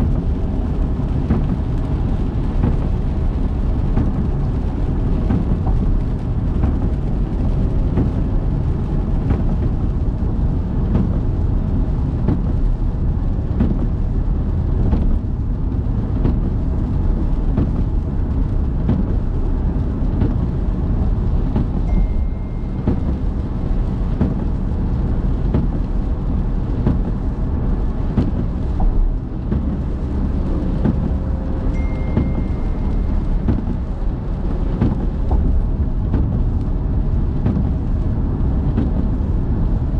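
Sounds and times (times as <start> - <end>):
rain hiss: 0.0 - 39.9
road and engine rumble: 0.0 - 39.9.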